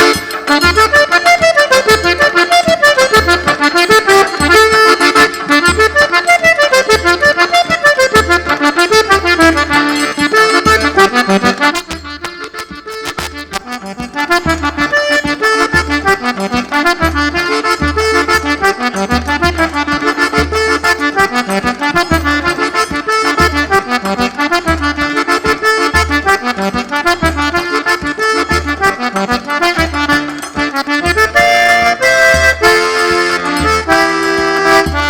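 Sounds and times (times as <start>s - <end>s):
triangle ticking: 0.0s - 24.9s
accordion melody: 0.0s - 35.0s.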